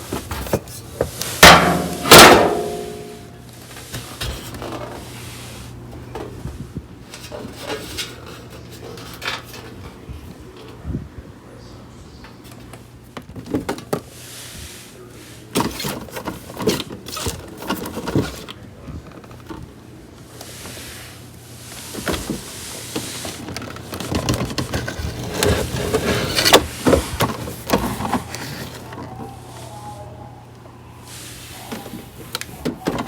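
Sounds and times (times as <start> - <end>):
packaging rustling: 23.2 - 29.3.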